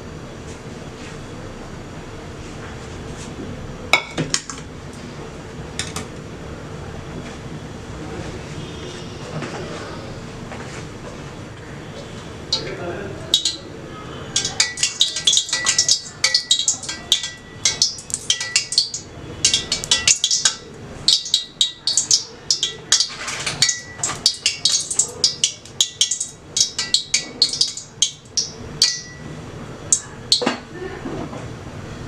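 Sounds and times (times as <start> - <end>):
food frying in hot oil: 12.5 - 13.6, 14.3 - 30.7.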